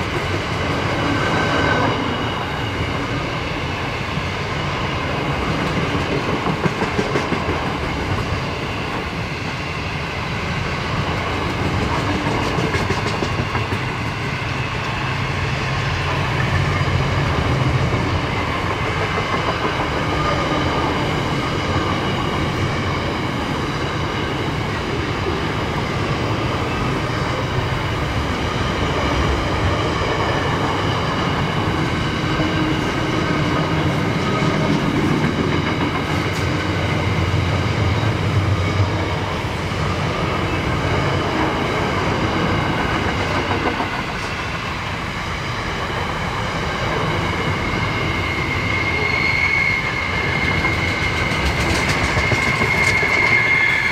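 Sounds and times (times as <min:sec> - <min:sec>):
high ringing of wheel on rail: 0:00.0 - 0:53.9
train wheels clattering over rails: 0:00.0 - 0:53.9.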